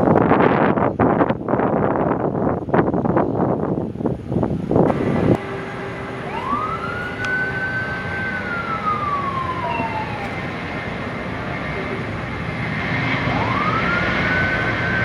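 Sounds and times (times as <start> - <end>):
wind buffeting microphone: 0.0 - 15.0
jet engine whine: 2.8 - 15.0
aircraft engines rushing: 3.9 - 15.0.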